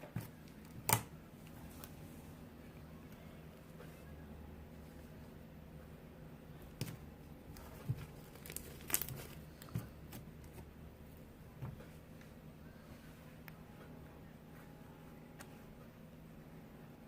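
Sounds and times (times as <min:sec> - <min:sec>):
slime crackling and popping: 0:07.9 - 0:09.7.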